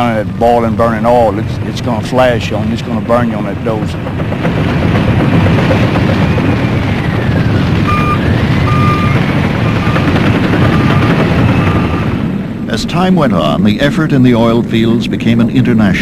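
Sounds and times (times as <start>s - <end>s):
heavy machine engine rumbling: 0.0s - 16.0s
reversing alarm beeping: 6.5s - 12.2s.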